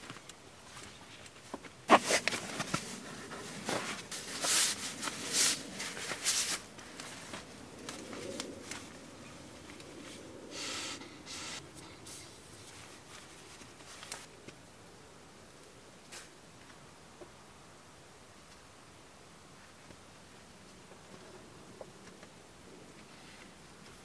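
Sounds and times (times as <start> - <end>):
sleeping bag rustling and swishing: 1.9 - 9.1.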